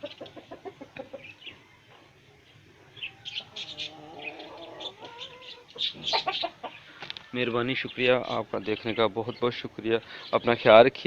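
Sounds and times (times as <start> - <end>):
high bird chirps and twitters: 3.0 - 9.5.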